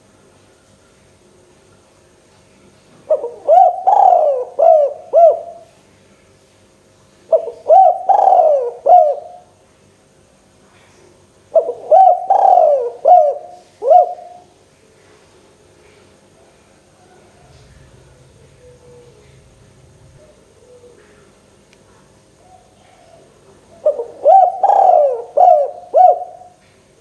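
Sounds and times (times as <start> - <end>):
dove cooing: 3.1 - 5.7, 7.3 - 9.5, 11.5 - 14.6, 16.9 - 21.4, 22.3 - 26.6.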